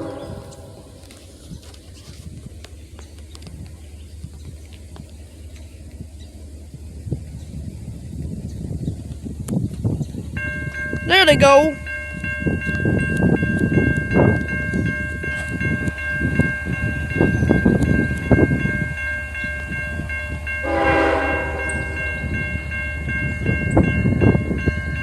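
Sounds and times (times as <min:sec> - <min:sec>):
train horn: 0:00.0 - 0:01.2, 0:20.5 - 0:22.7
train rumbling past: 0:00.0 - 0:25.0
steady high ringing tones: 0:10.2 - 0:25.0.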